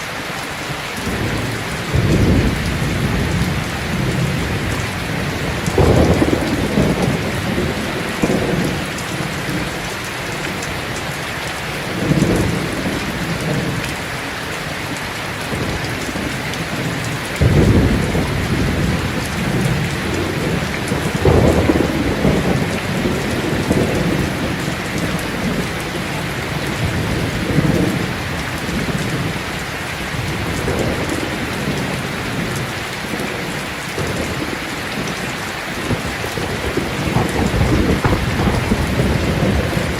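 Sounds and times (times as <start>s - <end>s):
heavy rain hiss: 0.0s - 39.9s
rolling thunder: 1.0s - 9.9s, 15.5s - 29.5s, 30.1s - 39.9s.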